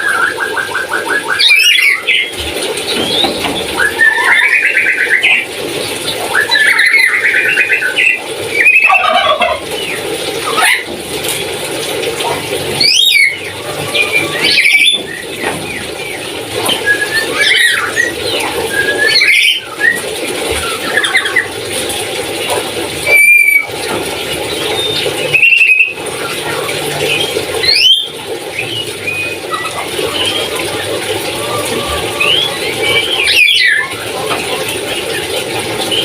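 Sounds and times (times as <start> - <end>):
parrot squealing calls: 8.6 - 9.6, 10.4 - 10.9, 23.0 - 23.7, 31.3 - 34.0.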